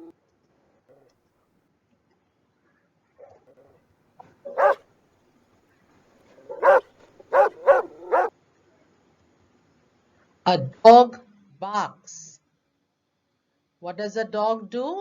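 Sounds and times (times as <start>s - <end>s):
dog barking: 4.2s - 4.8s, 6.4s - 8.3s.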